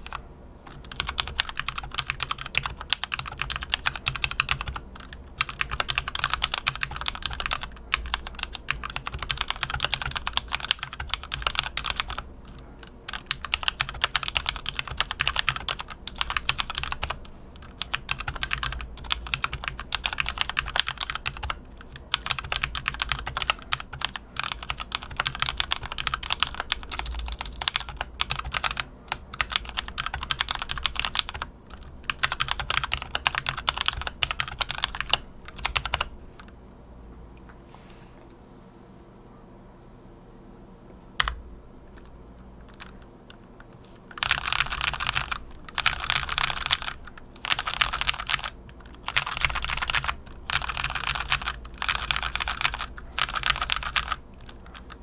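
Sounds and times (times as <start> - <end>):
mechanical keyboard typing: 0.0 - 36.1, 41.2 - 55.0.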